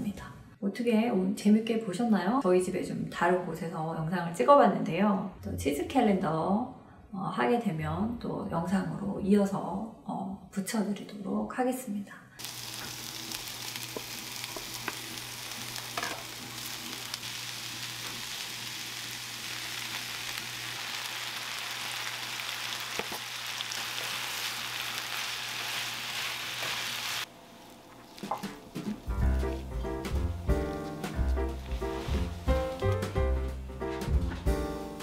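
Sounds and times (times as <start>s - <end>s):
fire popping: 12.4s - 33.6s
wood fire crackling: 12.4s - 34.4s.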